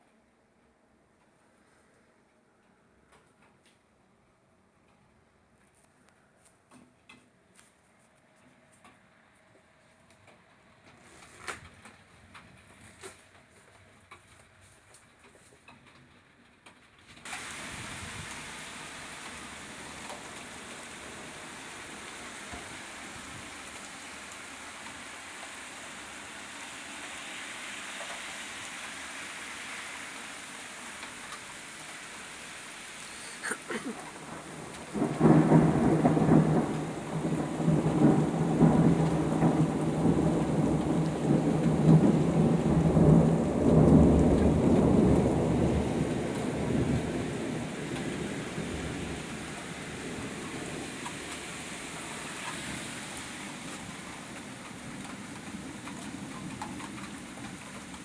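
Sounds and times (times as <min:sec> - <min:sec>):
steady rain falling: 0:02.6 - 0:58.0
rolling thunder: 0:34.0 - 0:51.4
sharp thunder crack: 0:34.2 - 0:47.6.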